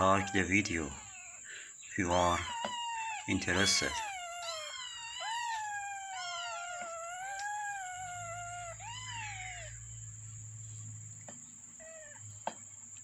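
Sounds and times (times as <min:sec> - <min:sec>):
kittens mewing: 0:00.0 - 0:10.0.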